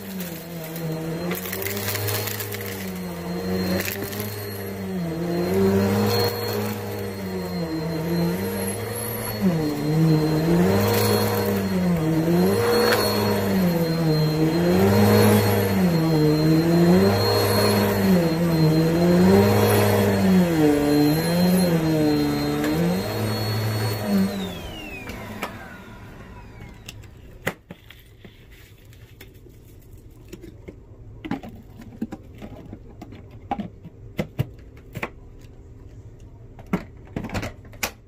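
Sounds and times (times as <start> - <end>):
vacuum cleaner running: 0.0 - 27.4.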